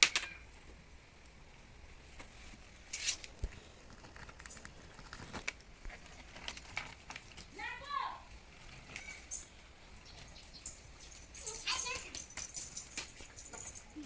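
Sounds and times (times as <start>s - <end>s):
hands handling objects: 2.2s - 14.0s
scratchy scrape: 2.3s - 7.0s.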